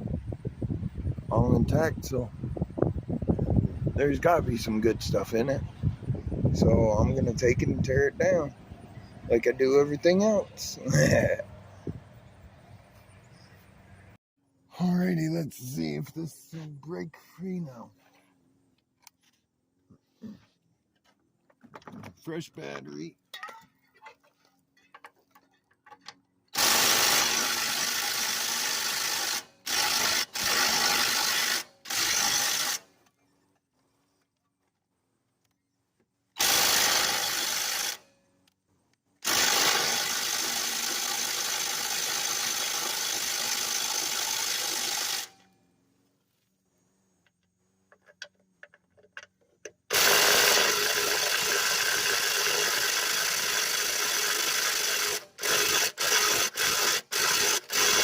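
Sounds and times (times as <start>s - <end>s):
cordless power drill running: 26.6s - 32.9s, 36.4s - 38.0s, 39.2s - 45.5s, 49.9s - 58.0s.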